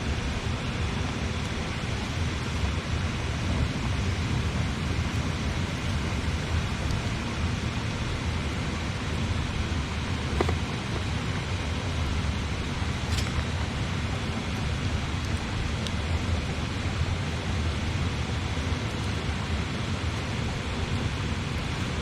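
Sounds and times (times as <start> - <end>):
river flowing: 0.0 - 22.0
campfire crackling and popping: 0.4 - 17.1.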